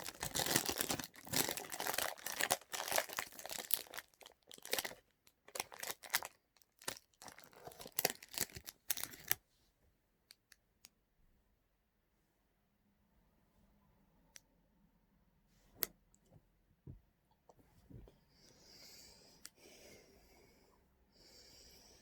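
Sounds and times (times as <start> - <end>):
wrapper tearing and crinkling: 0.0 - 9.4.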